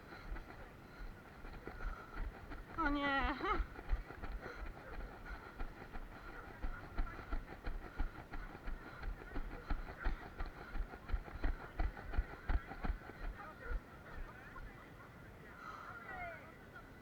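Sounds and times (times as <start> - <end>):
gear clicking and rattling: 0.0 - 13.8
running footsteps: 0.0 - 14.3.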